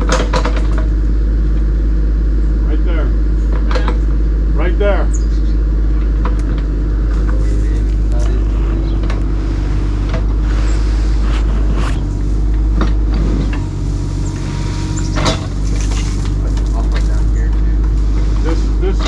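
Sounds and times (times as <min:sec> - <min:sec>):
heavy equipment engine rumbling: 0:05.7 - 0:18.8.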